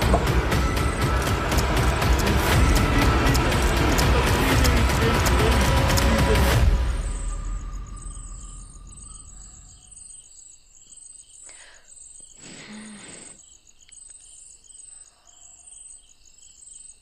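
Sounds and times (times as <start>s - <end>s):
music: 0.0s - 9.7s
crickets chirping: 0.0s - 17.0s.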